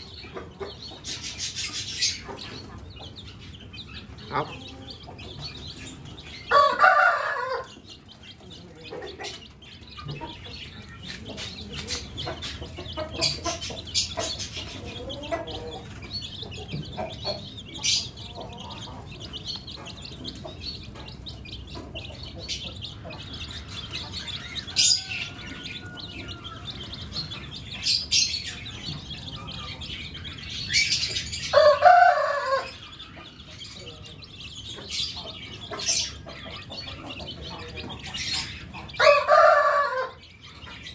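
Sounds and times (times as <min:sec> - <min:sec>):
birds chirping and clucking: 0:00.0 - 0:40.9
rooster crowing: 0:06.5 - 0:07.8, 0:24.5 - 0:27.0, 0:31.5 - 0:32.8, 0:39.0 - 0:40.2.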